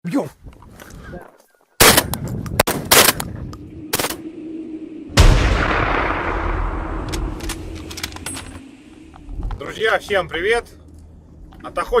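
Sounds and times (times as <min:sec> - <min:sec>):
wind rumbling on microphone: 0:02.0 - 0:10.3.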